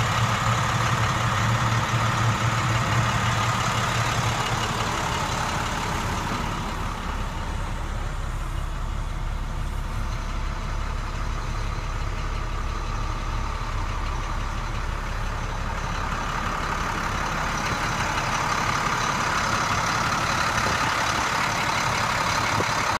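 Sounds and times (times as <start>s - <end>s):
diesel truck engine running: 0.0s - 22.9s.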